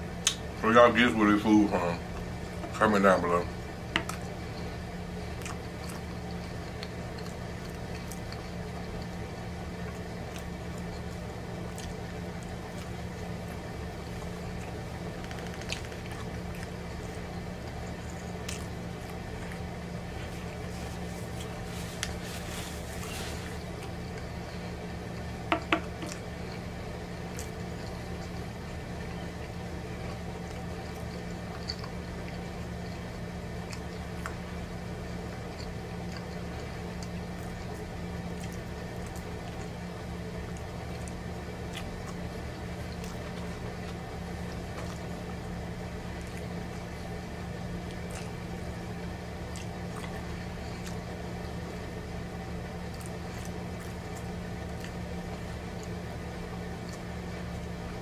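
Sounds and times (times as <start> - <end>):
man chewing pizza: 0.0 - 58.0
steady low hum: 0.0 - 58.0
eating clicks: 14.6 - 17.1.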